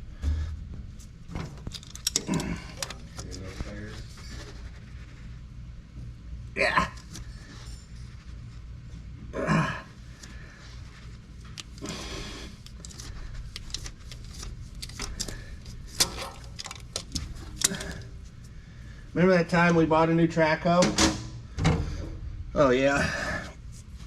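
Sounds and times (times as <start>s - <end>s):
low hum: 0.0s - 19.2s
tools clicking and clinking: 1.4s - 3.4s, 12.6s - 18.1s.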